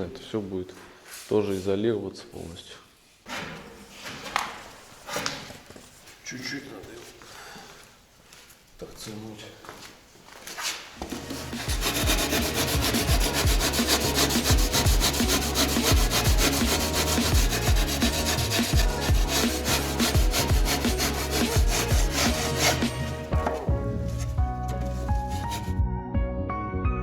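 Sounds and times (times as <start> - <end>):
hand sawing and rubbing board: 10.6 - 25.8
music: 11.0 - 27.0.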